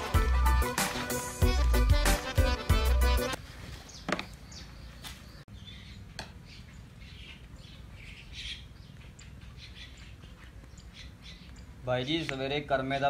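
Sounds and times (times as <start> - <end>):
birds chirping: 3.1 - 13.0.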